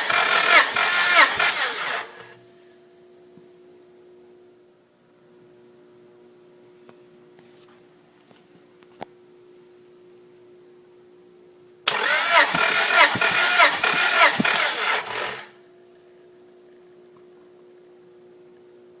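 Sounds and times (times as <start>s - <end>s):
engine cranking on starter: 0.0s - 2.4s, 11.9s - 15.6s.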